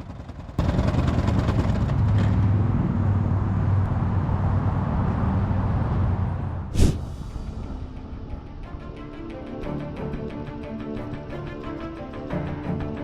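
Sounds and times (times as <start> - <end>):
vehicle engine hum: 0.0 - 9.3
road noise: 0.6 - 9.4.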